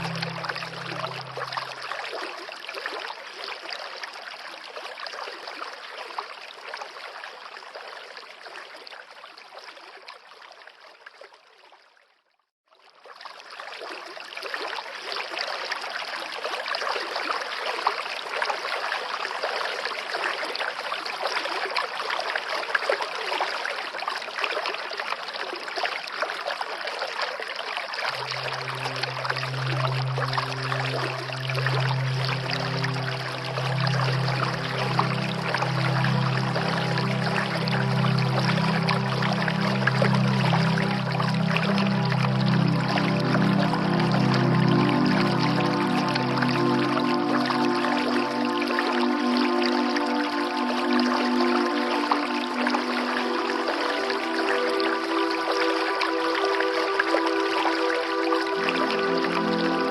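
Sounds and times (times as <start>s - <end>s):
stream water rushing: 0.0s - 4.0s, 27.7s - 59.9s.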